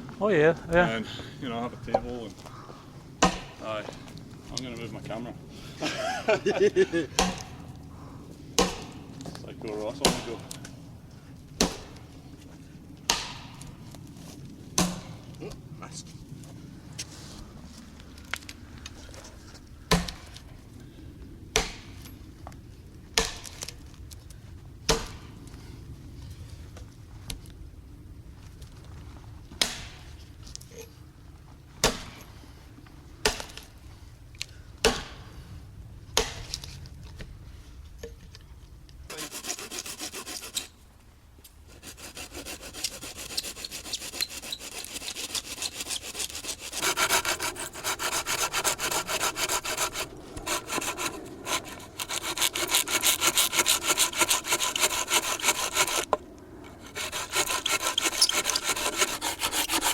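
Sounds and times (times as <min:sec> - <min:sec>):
hand saw cutting wood: 0:07.2 - 0:07.6, 0:10.0 - 0:10.5, 0:39.1 - 0:40.8, 0:41.7 - 0:59.9.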